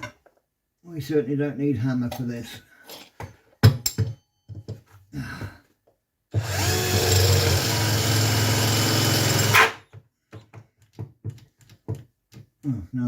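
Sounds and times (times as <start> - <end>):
cordless drill with hole saw: 6.4 - 9.8.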